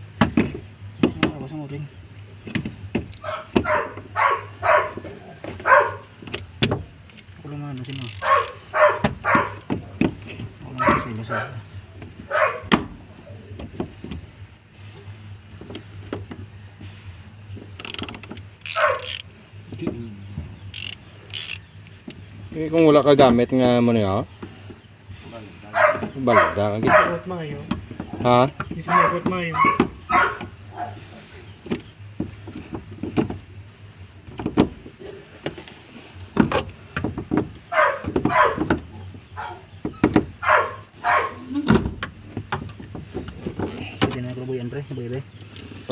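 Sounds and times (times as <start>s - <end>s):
low steady hum: 0.0s - 45.9s
ratchet wrench clicking: 7.8s - 8.6s, 17.8s - 19.3s, 20.7s - 22.4s.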